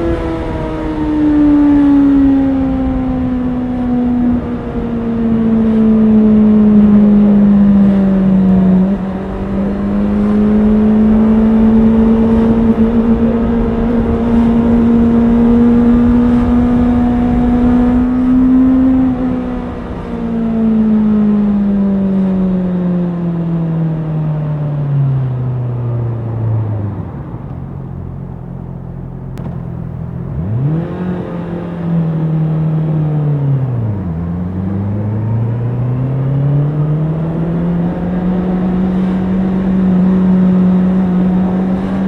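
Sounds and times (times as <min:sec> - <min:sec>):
motorcycle engine running: 0:04.1 - 0:19.4, 0:25.7 - 0:42.0.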